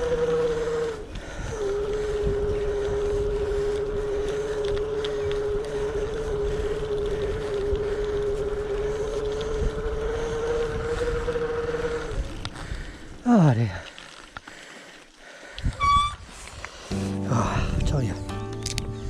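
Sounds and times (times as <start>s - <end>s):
electric bike motor whining: 0.0s - 13.2s
wind noise on microphone: 0.0s - 13.2s, 15.5s - 19.0s.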